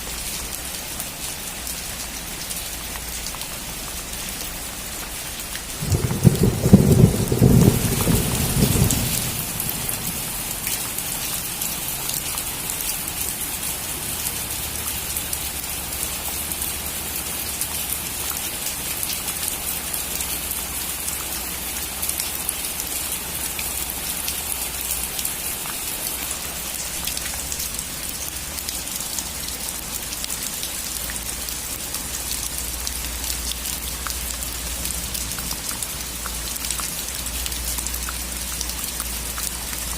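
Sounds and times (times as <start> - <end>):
rain pattering on a roof: 0.0 - 39.9
thunder cracking and rumbling: 5.8 - 10.8.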